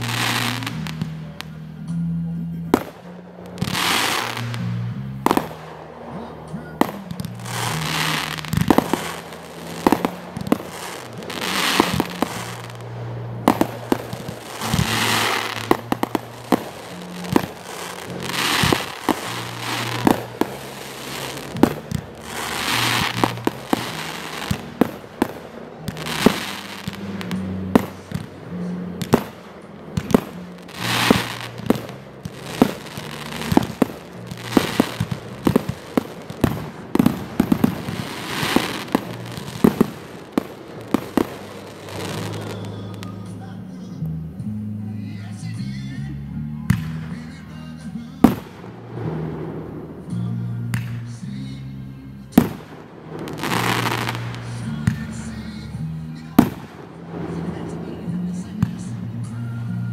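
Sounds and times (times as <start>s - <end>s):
fireworks bangs: 0.0s - 44.4s, 46.7s - 59.9s
fireworks crackling hiss: 0.0s - 46.0s, 46.8s - 59.9s.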